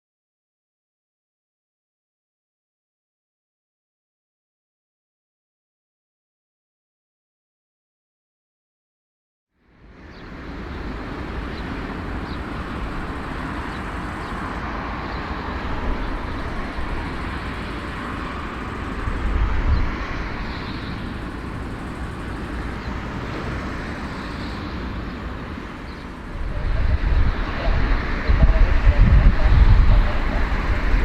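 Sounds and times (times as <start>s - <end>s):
aircraft engines rumbling: 9.7s - 31.0s.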